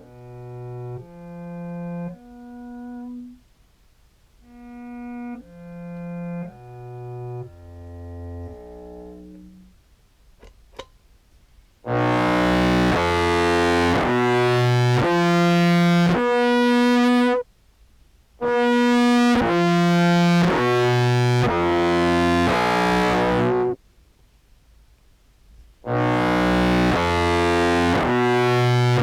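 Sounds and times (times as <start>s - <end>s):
distorted low clarinet notes: 0.0s - 3.4s, 4.4s - 9.8s, 11.8s - 17.4s, 18.4s - 23.8s, 25.8s - 29.0s.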